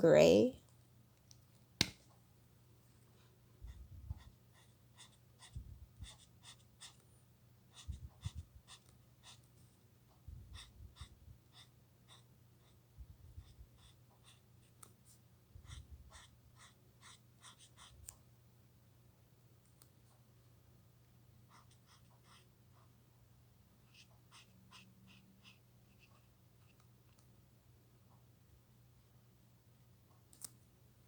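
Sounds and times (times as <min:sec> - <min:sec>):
marker scratching on paper: 0:03.7 - 0:07.0, 0:07.7 - 0:09.5, 0:15.6 - 0:18.0, 0:21.5 - 0:22.9, 0:23.8 - 0:26.8.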